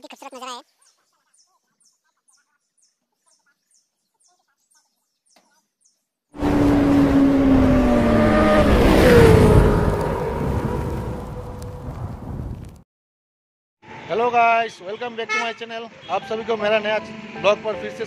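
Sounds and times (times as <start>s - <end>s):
motorcycle engine: 6.4s - 12.3s.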